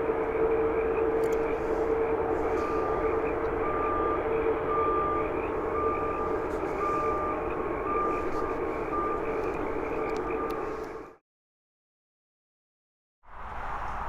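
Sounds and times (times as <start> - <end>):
reversing alarm beeping: 0.0 - 11.2
steady hum: 0.0 - 11.2.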